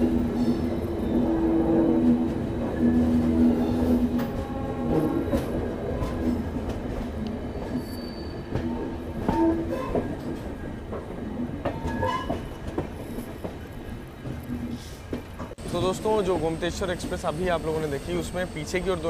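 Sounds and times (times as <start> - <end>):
diesel locomotive hum: 0.0 - 19.0
train wheels rumbling on rails: 0.0 - 19.0
wheels squealing: 0.1 - 10.2.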